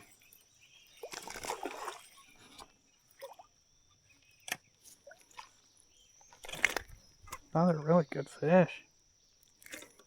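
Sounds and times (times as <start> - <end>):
creek water splashing: 1.0 - 3.5, 5.0 - 7.9.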